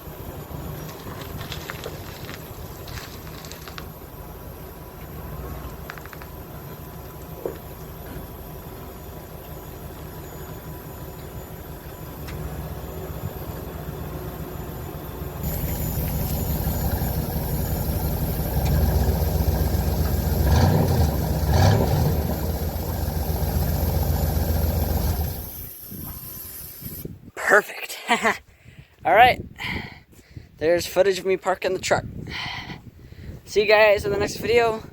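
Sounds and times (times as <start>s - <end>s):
truck engine running: 0.1s - 27.0s.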